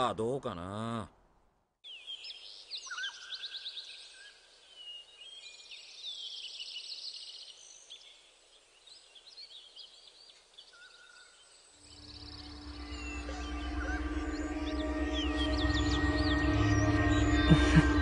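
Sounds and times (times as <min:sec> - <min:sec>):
birds chirping and trilling: 0:01.8 - 0:18.0.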